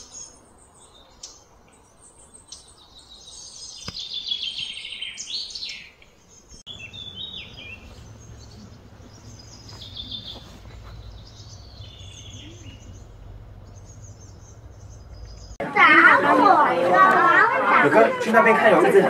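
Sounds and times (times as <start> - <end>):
small birds chirping: 0.0 - 15.7
low hum: 6.6 - 15.6.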